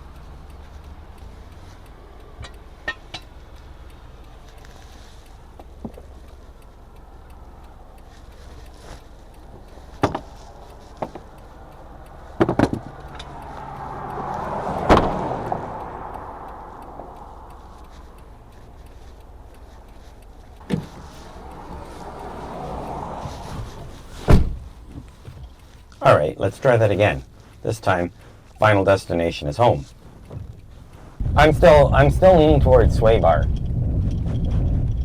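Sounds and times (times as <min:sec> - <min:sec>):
clicks and knocks around a car: 0:00.2 - 0:03.7, 0:04.3 - 0:07.0, 0:08.0 - 0:26.0, 0:29.8 - 0:31.2
loud clunks: 0:14.8 - 0:15.2, 0:23.2 - 0:25.5.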